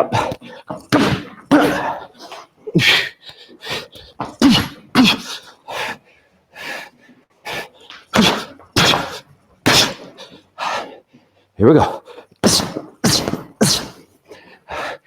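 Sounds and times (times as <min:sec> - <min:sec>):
man grunting: 0:01.5 - 0:02.2, 0:04.4 - 0:05.4, 0:11.7 - 0:14.0.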